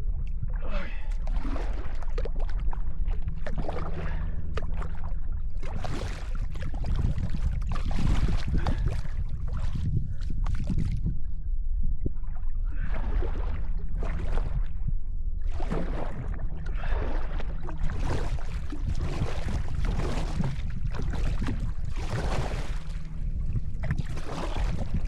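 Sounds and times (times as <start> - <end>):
low rumble: 0.0 - 25.0
paddle strokes splashing water: 0.5 - 11.0, 12.4 - 14.7, 15.4 - 25.0.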